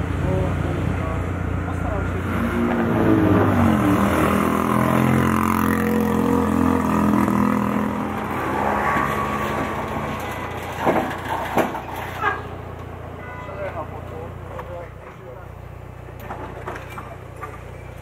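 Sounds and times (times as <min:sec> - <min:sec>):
car driving past: 0:01.7 - 0:12.1.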